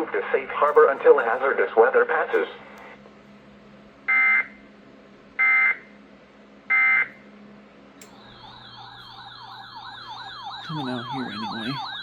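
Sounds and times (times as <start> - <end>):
warbling siren-like tone: 8.2 - 12.0.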